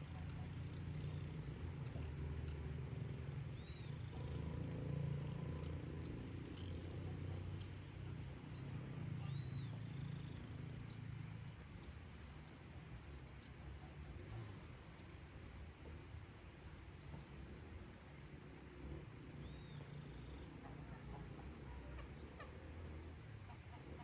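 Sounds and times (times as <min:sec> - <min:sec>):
faint bird calls: 0:00.0 - 0:12.0, 0:18.1 - 0:24.0
steady low rumble: 0:00.0 - 0:24.0.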